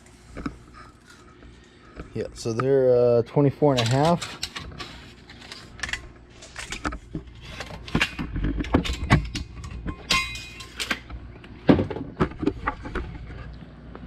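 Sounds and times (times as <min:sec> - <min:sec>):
metal pieces clinking and knocking: 0:08.8 - 0:11.0
metallic ring: 0:09.9 - 0:11.0.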